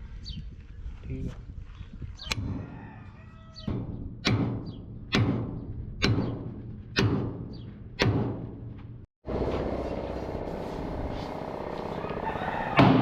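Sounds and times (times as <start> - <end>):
hammer striking metal: 3.7 - 8.6.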